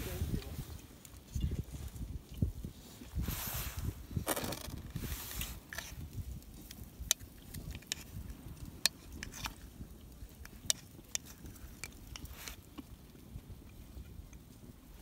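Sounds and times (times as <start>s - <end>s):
soft rustling: 2.7s - 6.7s.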